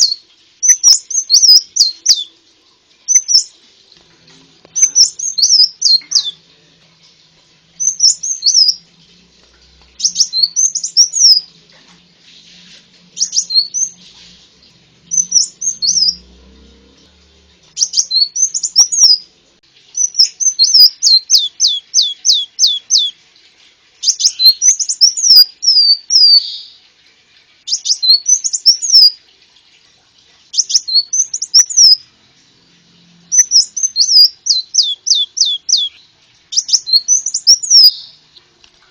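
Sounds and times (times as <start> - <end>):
sunbird chirping song: 0.0 - 2.4, 3.0 - 3.6, 4.7 - 6.4, 7.8 - 8.8, 9.9 - 11.5, 13.2 - 14.1, 15.1 - 16.3, 17.7 - 19.3, 19.9 - 23.2, 24.0 - 26.8, 27.7 - 29.2, 30.5 - 32.0, 33.1 - 38.4.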